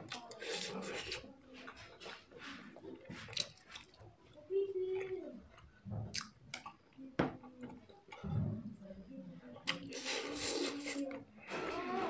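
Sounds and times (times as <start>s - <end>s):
person chewing noodles: 1.9s - 6.8s
sharp mouth clicks: 6.1s - 6.8s
wet mouth smacks: 6.1s - 6.8s.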